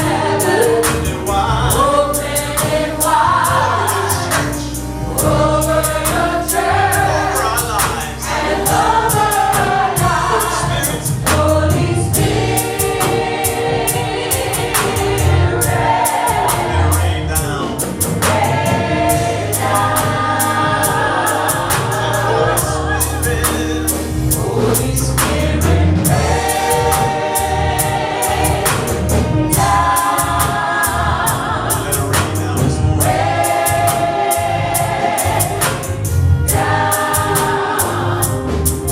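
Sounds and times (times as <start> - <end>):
bass playing low notes: 0.0 - 38.9
gospel choir singing: 0.0 - 38.9
steady cymbal beat: 0.0 - 38.9.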